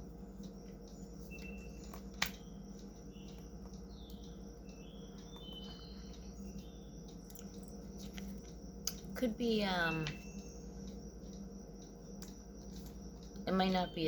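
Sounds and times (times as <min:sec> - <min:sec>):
faint electrical hum: 0:00.0 - 0:14.0
small ticks: 0:00.0 - 0:14.0
faint high chirps: 0:00.4 - 0:08.1, 0:09.6 - 0:11.0.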